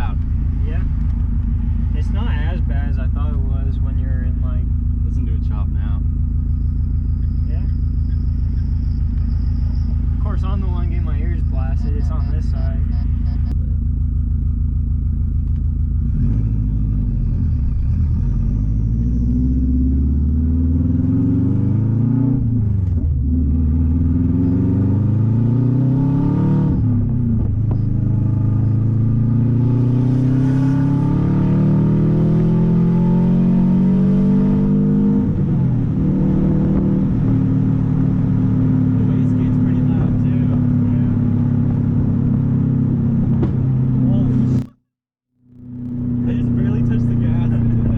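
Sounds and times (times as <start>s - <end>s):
loud car engine accelerating: 0.0s - 44.8s, 45.4s - 47.9s.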